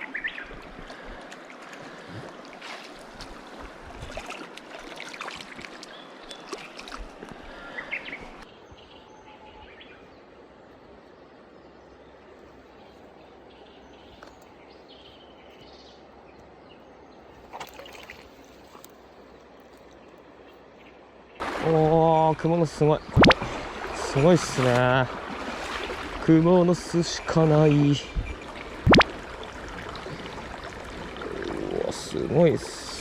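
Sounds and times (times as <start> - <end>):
water splashes and clicks: 0.0 - 7.4, 17.4 - 20.2, 23.1 - 32.1
mountain stream running: 0.0 - 8.6, 17.2 - 33.0.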